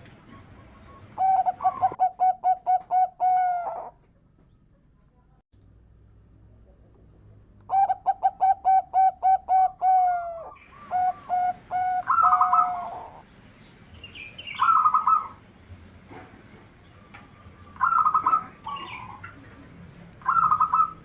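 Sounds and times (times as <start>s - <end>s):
dove cooing: 0.0s - 4.3s, 7.7s - 13.3s, 14.4s - 15.4s, 17.0s - 19.5s, 20.2s - 21.0s.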